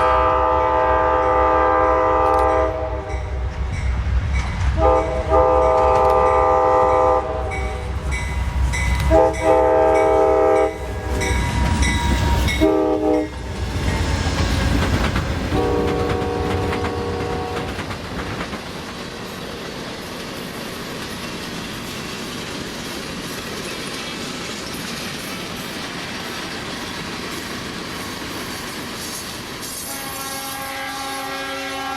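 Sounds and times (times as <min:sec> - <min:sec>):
locomotive air horn: 0:00.0 - 0:03.3, 0:04.8 - 0:07.8, 0:09.0 - 0:11.4, 0:12.6 - 0:13.4, 0:15.5 - 0:17.8, 0:29.6 - 0:31.9
train wheels clattering on rails: 0:02.0 - 0:30.1.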